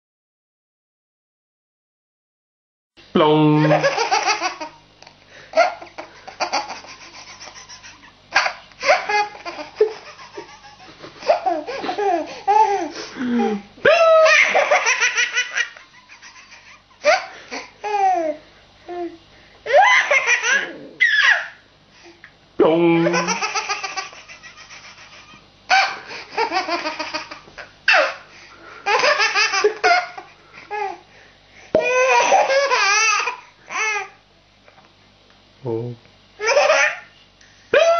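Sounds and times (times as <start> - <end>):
baby laughing: 3.6 - 4.8, 5.6 - 18.4, 19.7 - 21.6, 23.0 - 28.2, 28.8 - 31.0, 31.8 - 34.2, 36.4 - 37.1.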